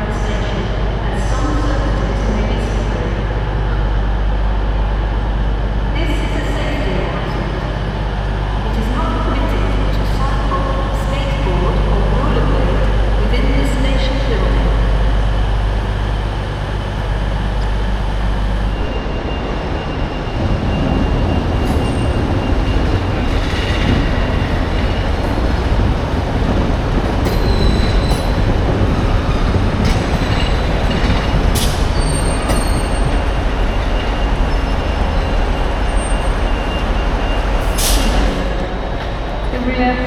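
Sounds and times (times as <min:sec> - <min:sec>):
train rumbling: 0:00.0 - 0:40.0
train clicks: 0:21.2 - 0:40.0.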